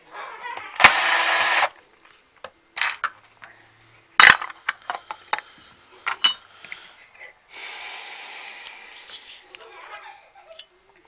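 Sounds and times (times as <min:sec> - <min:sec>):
small parts clinking on workbench: 0:04.2 - 0:05.5
steady hiss: 0:04.9 - 0:09.6.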